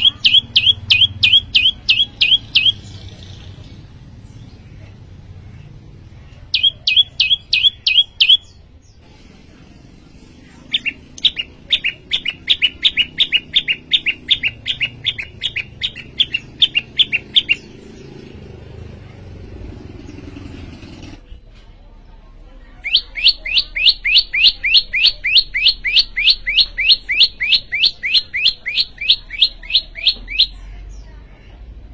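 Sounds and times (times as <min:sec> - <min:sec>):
bird singing sharp high notes: 0:00.0 - 0:02.9, 0:06.5 - 0:08.6, 0:10.7 - 0:17.8, 0:22.9 - 0:30.7.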